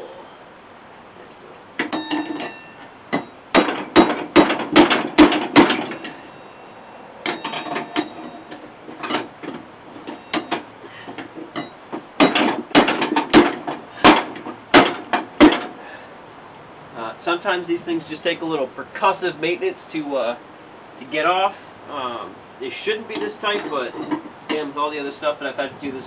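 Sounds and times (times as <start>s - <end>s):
hammer striking metal: 1.8s - 10.7s, 11.5s - 15.8s.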